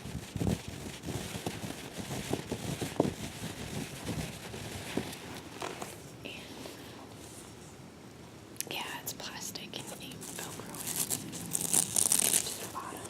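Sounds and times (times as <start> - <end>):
hands tapping and rustling carrier: 4.0 - 6.0.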